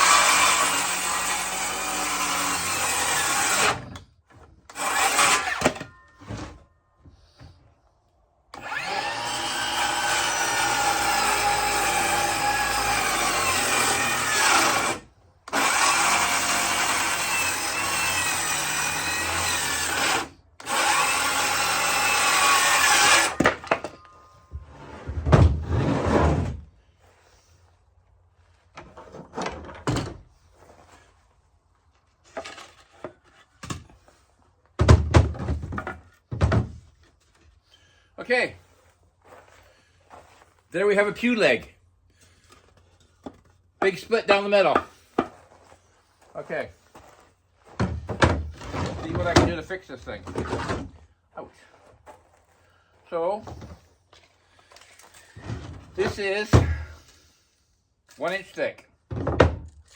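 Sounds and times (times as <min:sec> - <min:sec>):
power saw cutting wood: 0:00.0 - 0:05.9, 0:08.5 - 0:24.0, 0:56.0 - 0:56.9
heavy wooden thumps: 0:47.7 - 0:49.6, 0:55.4 - 0:57.0.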